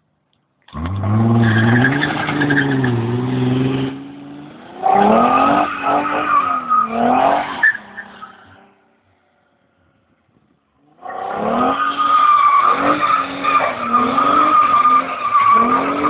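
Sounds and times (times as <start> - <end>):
car engine revving hard: 0.7 - 8.0, 11.2 - 16.0.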